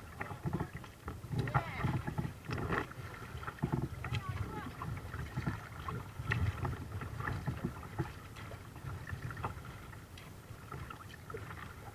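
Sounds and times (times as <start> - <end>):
paddle splashes: 0.0 - 11.9
water lapping around kayak: 0.0 - 11.9.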